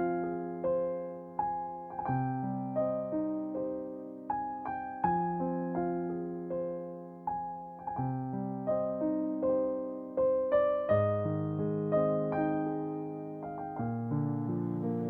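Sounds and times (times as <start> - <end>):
soft piano music: 0.0 - 15.0.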